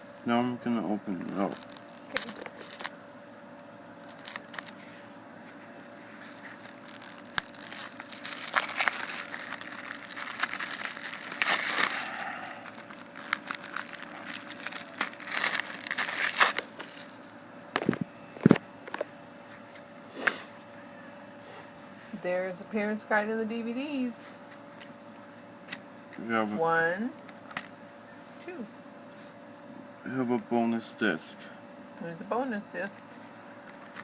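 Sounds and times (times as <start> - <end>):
plastic wrapping crinkling and tearing: 1.1 - 2.9, 4.0 - 4.8, 5.8 - 18.6.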